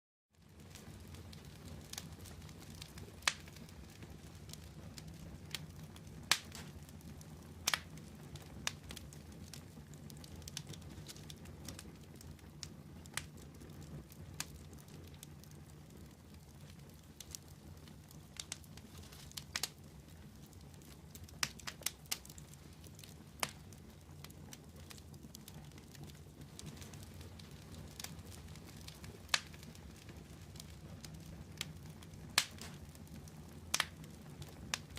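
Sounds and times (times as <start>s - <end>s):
low rumble of flames: 0.3s - 34.9s
campfire crackling and popping: 0.4s - 34.9s.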